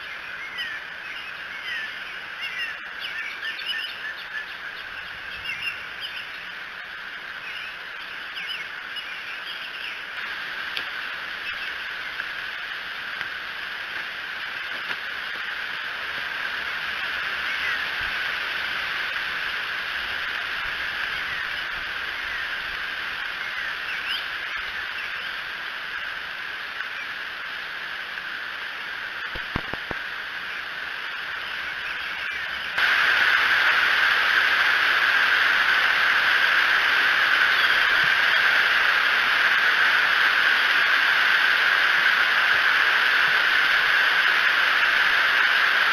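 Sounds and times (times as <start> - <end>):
faint bird chirps: 0.0 - 6.6, 7.4 - 10.2, 21.0 - 25.4, 37.3 - 38.5
rain hissing: 0.0 - 45.9.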